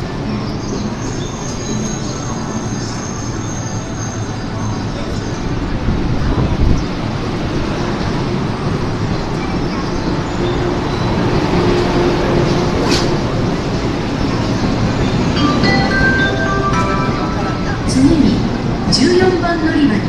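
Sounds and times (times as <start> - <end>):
electric train pulling away: 7.1 - 19.4.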